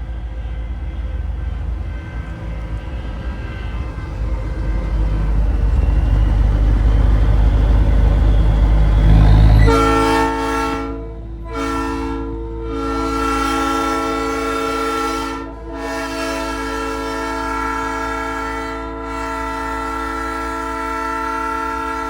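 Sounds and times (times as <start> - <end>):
truck engine and road rumble: 0.0 - 13.7
train horn on a truck: 9.0 - 22.0.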